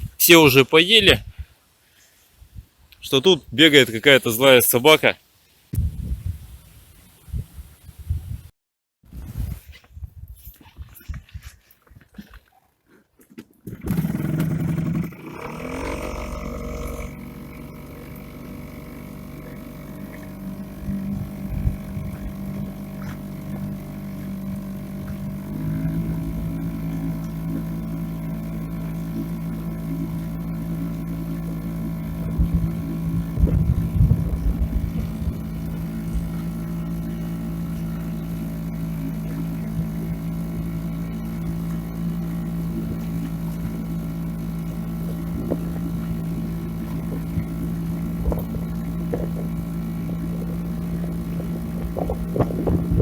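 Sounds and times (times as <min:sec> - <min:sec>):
wind buffeting microphone: 0:05.7 - 0:08.5, 0:19.2 - 0:23.0, 0:32.1 - 0:36.6, 0:46.7 - 0:53.0
outboard motor running: 0:13.6 - 0:53.0.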